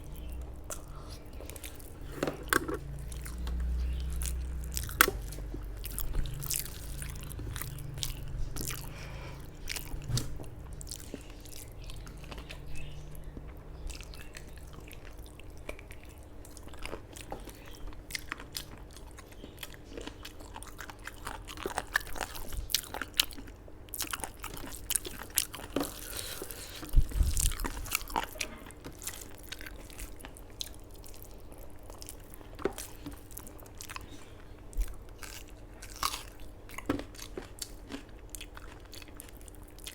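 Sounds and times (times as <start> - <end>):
faint steady hum: 0.0 - 39.9
person chewing crunchy food: 0.0 - 39.9.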